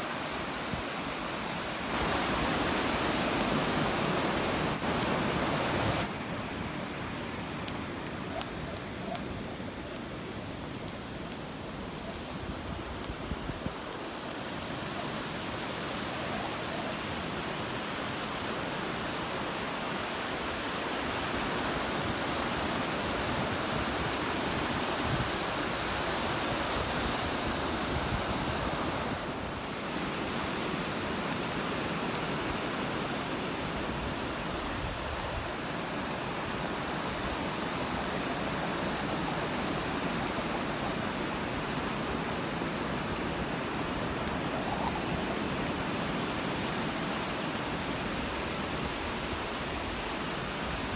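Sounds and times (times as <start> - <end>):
ocean surf: 0.0 - 8.4, 15.0 - 50.9
wind: 0.0 - 50.9.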